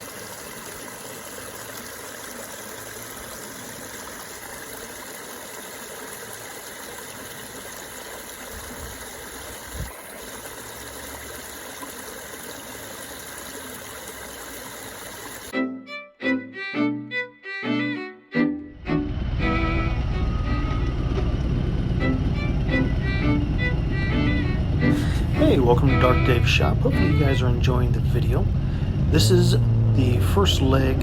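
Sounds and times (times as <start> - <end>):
string music: 15.5 - 31.0.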